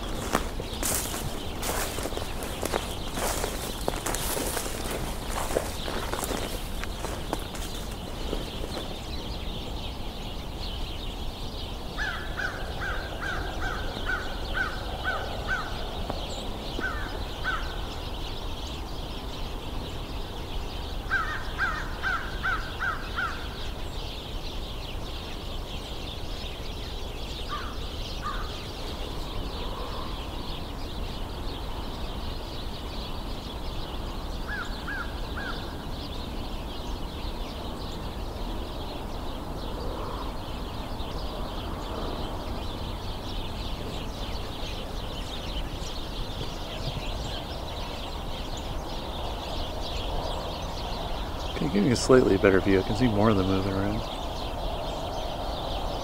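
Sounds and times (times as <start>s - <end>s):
sparrows chirping: 0.0s - 56.0s
crow cawing: 12.0s - 15.8s, 21.1s - 23.4s, 27.5s - 28.6s.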